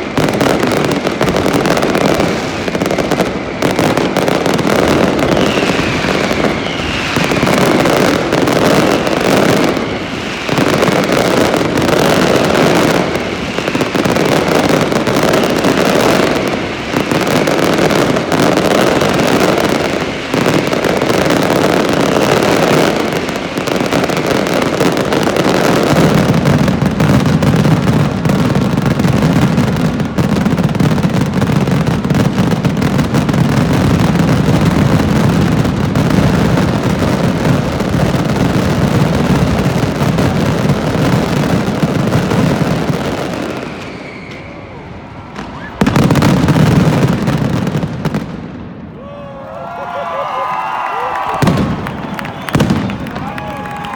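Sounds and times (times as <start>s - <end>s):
falling firework whistle: 0.0s - 31.7s, 42.2s - 48.2s, 48.9s - 53.9s
fireworks crackling and banging: 0.0s - 53.9s.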